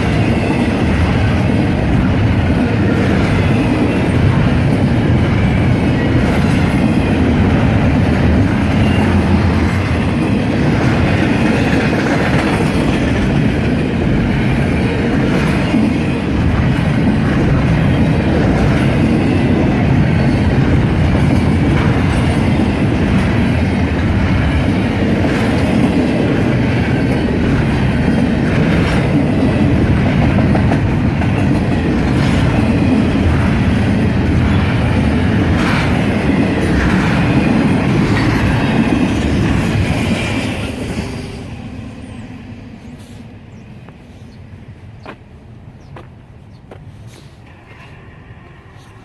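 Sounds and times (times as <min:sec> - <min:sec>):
train wheels clickety-clack: 0:00.0 - 0:41.7, 0:45.0 - 0:49.0
freight train rumbling: 0:00.0 - 0:49.0.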